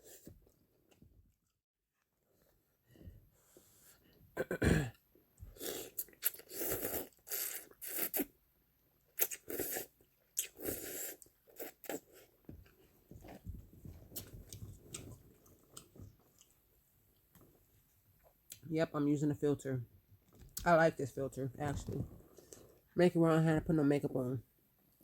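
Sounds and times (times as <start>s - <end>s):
wet chewing and mouth noises: 5.5s - 8.3s, 9.1s - 13.4s, 14.1s - 16.6s.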